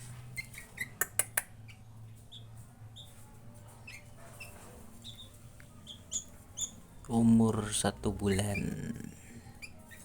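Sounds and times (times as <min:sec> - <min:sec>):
young bird chirping: 0:00.3 - 0:03.2, 0:03.8 - 0:06.9.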